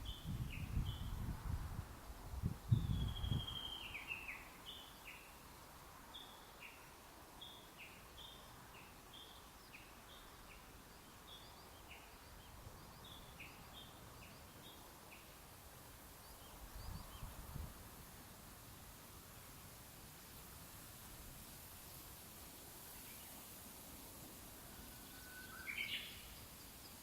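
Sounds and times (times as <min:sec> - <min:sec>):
long falling bird whistle: 0:24.6 - 0:26.4.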